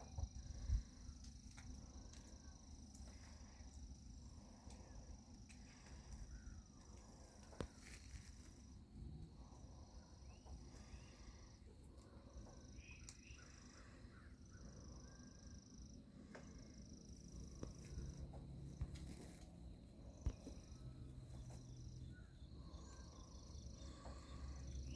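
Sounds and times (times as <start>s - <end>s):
faint bird chirps: 0.0s - 8.5s, 9.2s - 19.4s, 20.0s - 24.9s.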